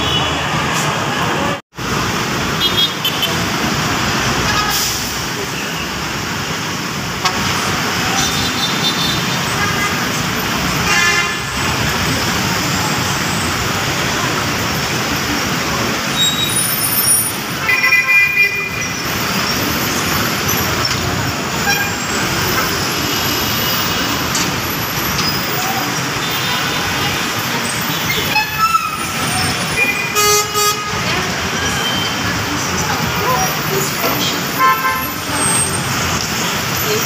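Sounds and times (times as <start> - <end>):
car horns tooting: 10.8 - 11.6, 21.5 - 24.2, 26.1 - 32.3, 34.5 - 35.8.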